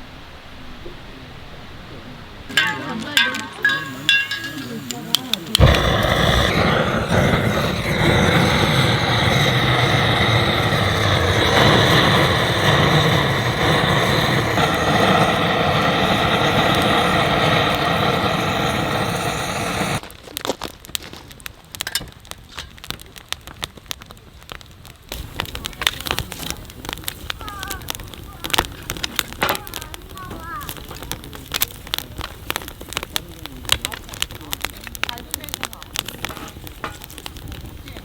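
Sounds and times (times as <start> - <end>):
burning firewood crackling: 0.1 - 38.0
machine-like rushing sound: 5.6 - 20.0.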